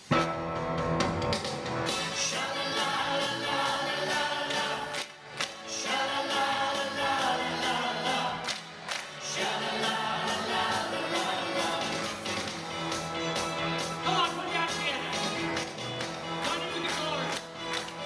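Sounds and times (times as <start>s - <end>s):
band accompaniment: 0.0s - 18.0s
choir singing: 1.9s - 13.6s.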